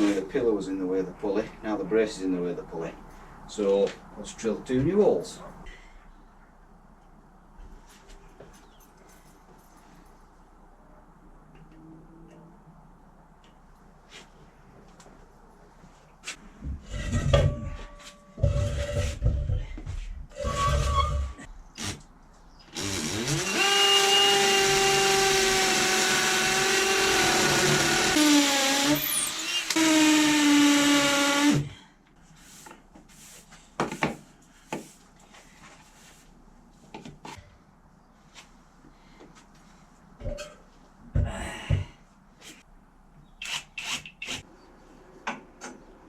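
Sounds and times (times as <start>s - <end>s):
electric drill boring: 22.7s - 31.7s.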